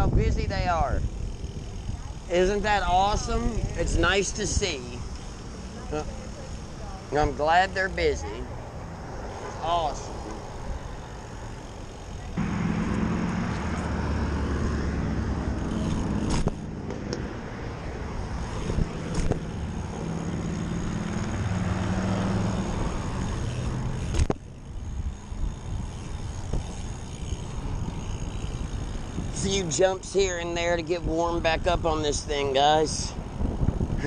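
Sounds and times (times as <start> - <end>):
passing traffic: 0.0 - 34.0
vehicle engine running close: 7.8 - 29.4.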